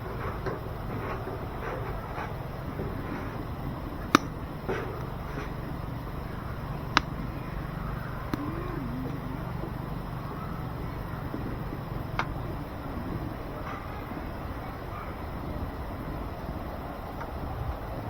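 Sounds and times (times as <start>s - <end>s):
firewood popping: 0.0s - 13.3s
wood stove rumbling: 0.0s - 17.0s.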